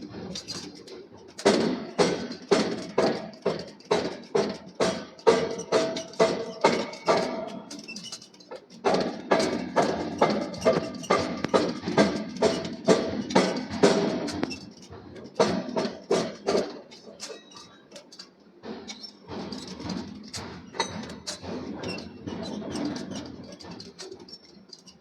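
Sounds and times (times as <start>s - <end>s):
faint clicks and knocks: 0.1s - 25.0s
hammer striking steel: 8.8s - 14.7s.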